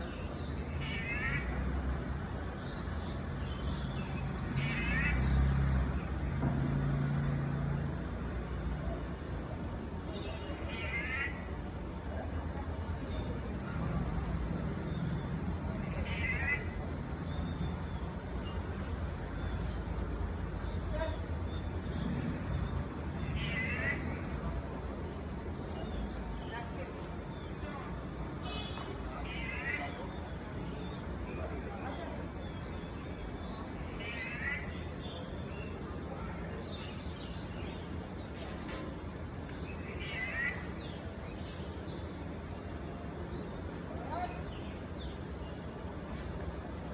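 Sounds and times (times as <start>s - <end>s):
low background noise: 0.0s - 46.9s
songbird calling: 2.6s - 5.6s, 10.1s - 11.8s, 27.3s - 36.0s, 36.6s - 42.8s.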